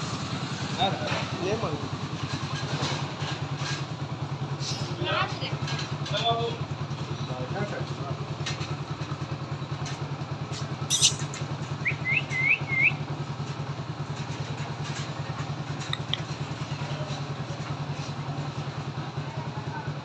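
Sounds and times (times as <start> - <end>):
motorcycle engine idling: 0.0 - 20.0
short rising chirps: 10.9 - 11.3
sharp click: 10.9 - 11.4, 15.8 - 16.4.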